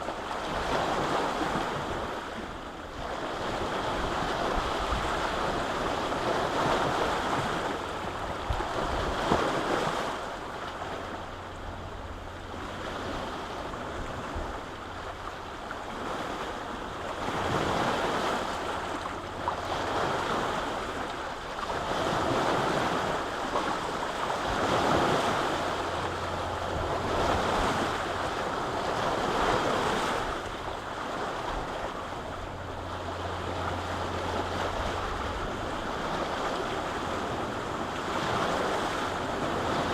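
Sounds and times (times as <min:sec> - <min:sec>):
waves washing onto shore: 0:00.0 - 0:39.9
wind: 0:00.0 - 0:39.9.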